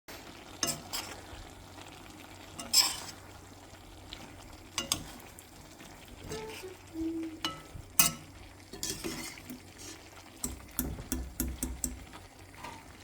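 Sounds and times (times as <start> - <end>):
faint sizzle: 0.1 - 13.0
utensil scraping a pan: 0.6 - 1.3, 2.5 - 3.3, 4.1 - 6.8, 7.4 - 12.0.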